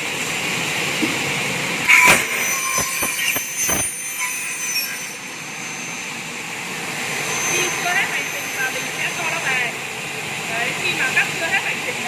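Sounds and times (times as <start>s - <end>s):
short loud burst: 1.9s - 4.4s
cutting saw motors running: 1.9s - 5.7s, 6.6s - 9.9s.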